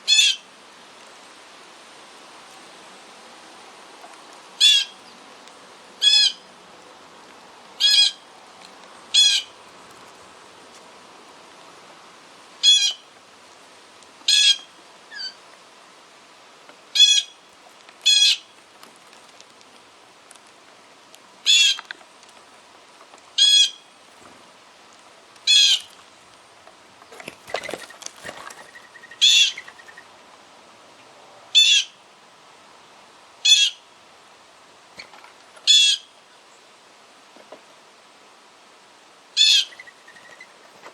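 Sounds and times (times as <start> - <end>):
rustling flurry: 26.9 - 29.9.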